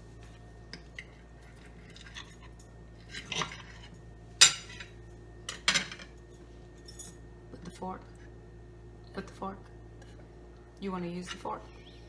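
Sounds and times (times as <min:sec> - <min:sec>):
cutlery clinking on a plate: 0:04.4 - 0:04.9.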